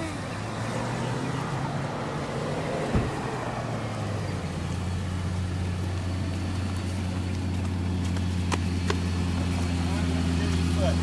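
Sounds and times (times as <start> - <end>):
car engine idling: 0.0 - 11.0
brief thump: 2.9 - 3.2.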